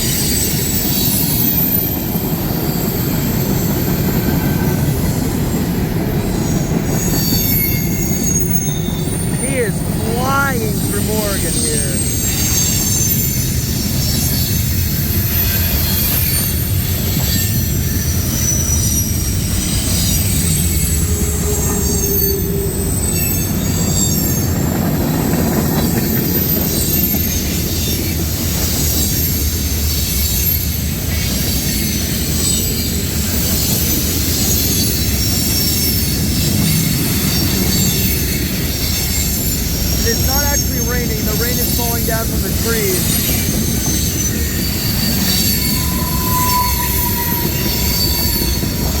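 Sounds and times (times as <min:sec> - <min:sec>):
freight train rumbling on rails: 0:00.0 - 0:10.0, 0:10.7 - 0:49.0
high-pitched wheel squeal: 0:43.2 - 0:49.0.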